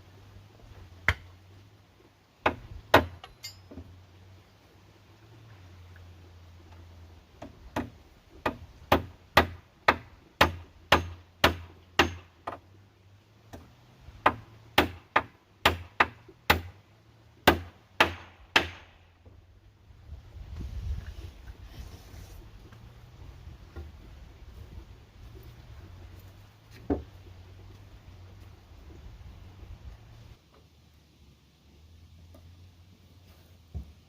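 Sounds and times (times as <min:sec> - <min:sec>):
hand tool striking wood: 0:02.4 - 0:03.8, 0:07.4 - 0:12.6, 0:13.5 - 0:16.8, 0:17.4 - 0:19.0.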